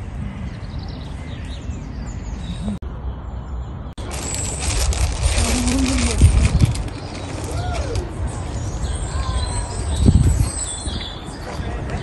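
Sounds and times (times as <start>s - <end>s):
small birds chirping: 0.2s - 12.0s.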